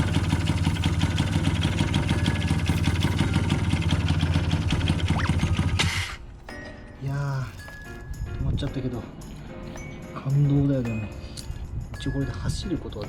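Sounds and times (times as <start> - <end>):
scooter engine running: 0.0 - 6.2.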